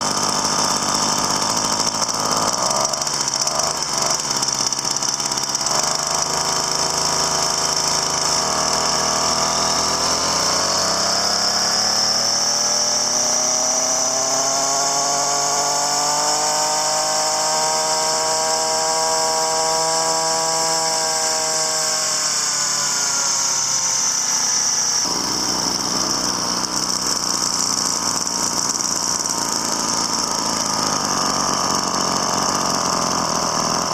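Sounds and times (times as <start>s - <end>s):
small machine motor whine: 0.0s - 33.9s
humming tone rising in pitch: 8.8s - 26.7s.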